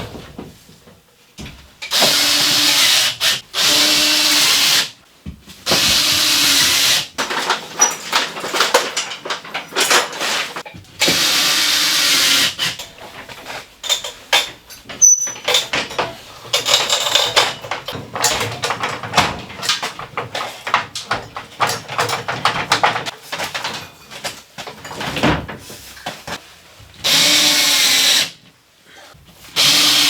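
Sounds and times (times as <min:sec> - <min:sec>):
knocks and clatter of building work: 0:00.0 - 0:02.7, 0:05.2 - 0:11.3, 0:12.2 - 0:27.0
high squeak: 0:15.0 - 0:15.5.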